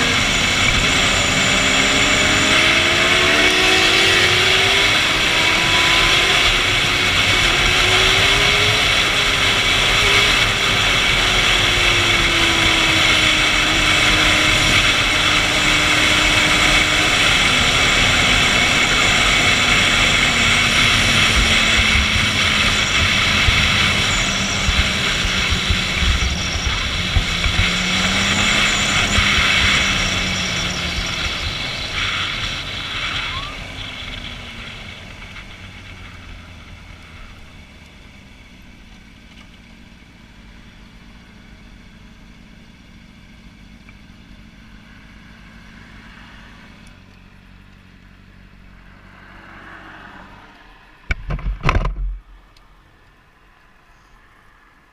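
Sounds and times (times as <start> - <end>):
wind rush: 0.0 - 36.6
motorcycle engine at speed: 0.0 - 54.8.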